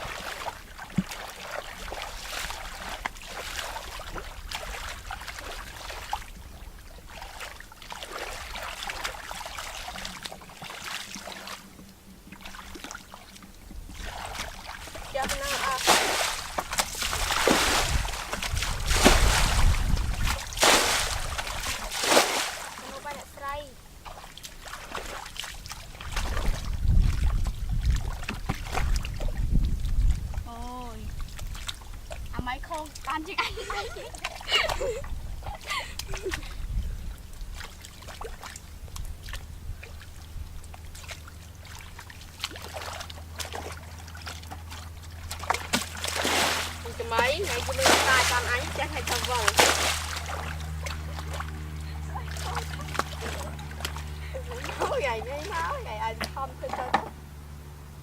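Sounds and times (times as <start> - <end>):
water sloshing and splashing: 0.0 - 58.0
low rumble: 13.9 - 23.4.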